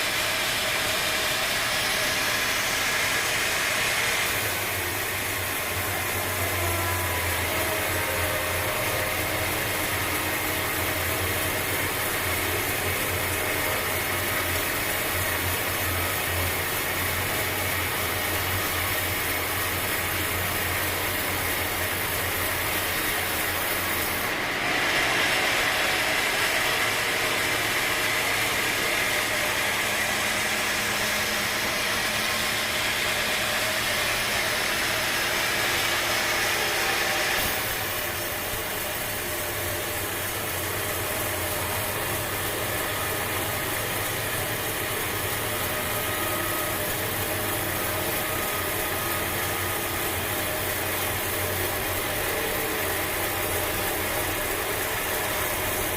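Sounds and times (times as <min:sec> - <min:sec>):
high-pitched machine noise: 0:00.0 - 0:55.9
sawmill machinery running: 0:00.0 - 0:55.9.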